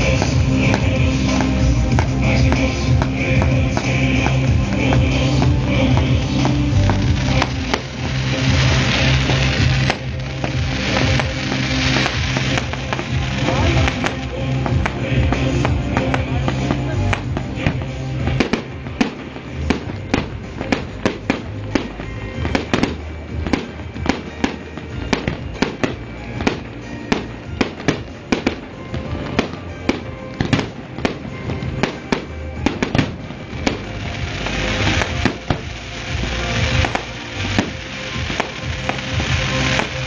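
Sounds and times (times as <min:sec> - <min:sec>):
fireworks bursting: 0:00.0 - 0:40.0
fireworks crackling hiss: 0:00.0 - 0:40.0
music: 0:00.0 - 0:40.0.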